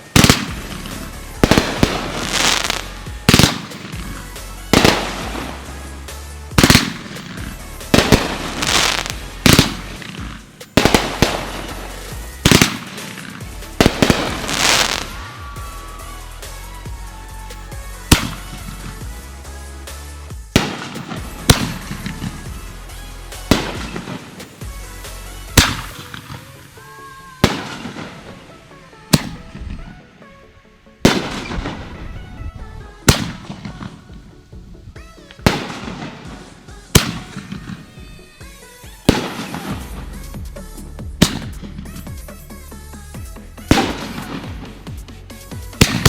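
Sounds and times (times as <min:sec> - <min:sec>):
fireworks bangs: 0:00.0 - 0:30.3, 0:31.0 - 0:46.0
background music with bass: 0:00.0 - 0:46.0.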